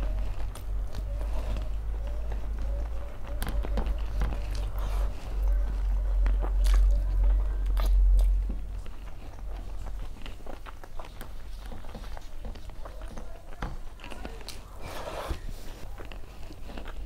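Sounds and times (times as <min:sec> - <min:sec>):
low rumble: 0:00.0 - 0:10.4
wet chewing and mouth sounds: 0:00.0 - 0:17.0.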